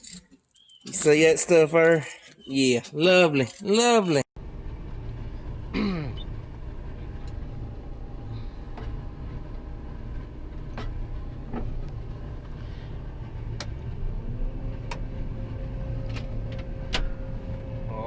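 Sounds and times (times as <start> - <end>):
engine idling: 4.4 - 18.0
steady hum: 4.4 - 18.0.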